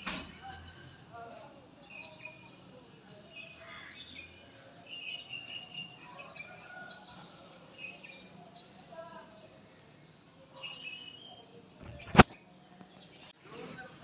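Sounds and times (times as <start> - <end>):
faint outdoor noise: 0.0 - 14.0
small birds chirping: 0.3 - 13.4.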